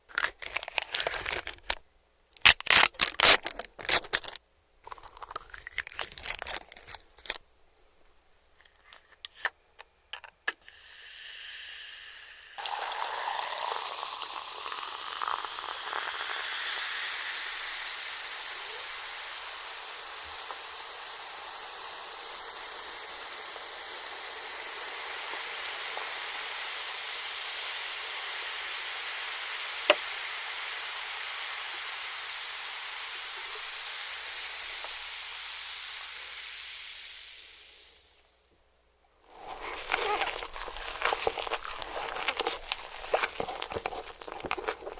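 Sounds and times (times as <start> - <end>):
food packaging crinkling and tearing: 0.1 - 1.8, 2.4 - 7.4, 39.3 - 44.9
steady liquid hiss: 2.8 - 44.9.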